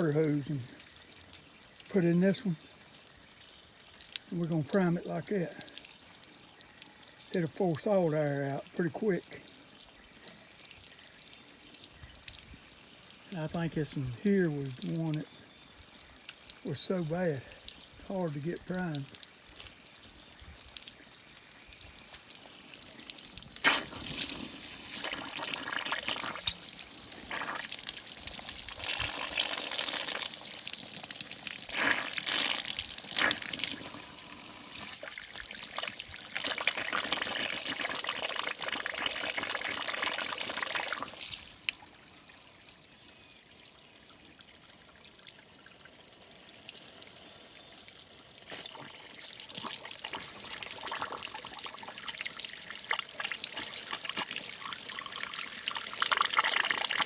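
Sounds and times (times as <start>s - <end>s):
water pouring and splashing: 0.0s - 42.4s, 43.5s - 57.0s.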